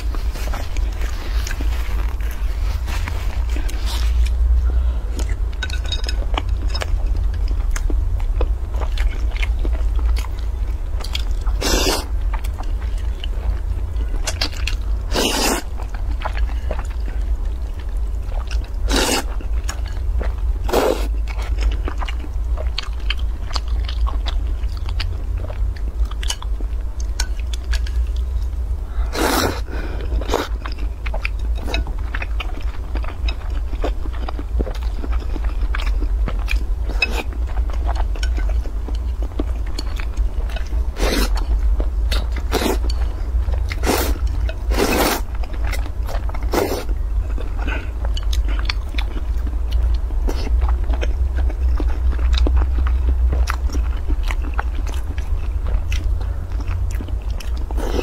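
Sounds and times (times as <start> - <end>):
chewing and mouth sounds: 0.0 - 58.0
steady low hum: 0.0 - 58.0.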